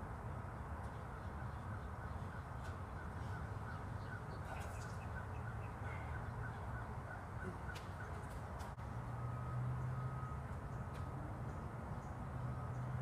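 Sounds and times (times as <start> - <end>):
birds chirping: 0.8 - 8.8.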